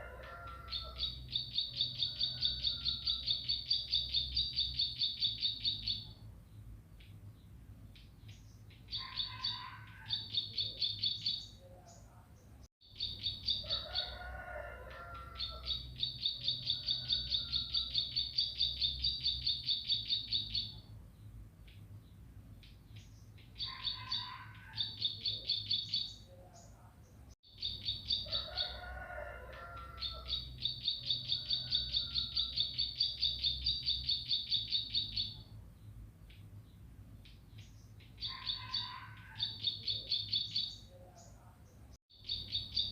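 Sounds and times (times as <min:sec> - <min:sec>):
bird song with high repeated notes: 0:00.4 - 0:12.2, 0:12.8 - 0:14.2, 0:15.3 - 0:26.8, 0:27.4 - 0:28.9, 0:30.0 - 0:42.9.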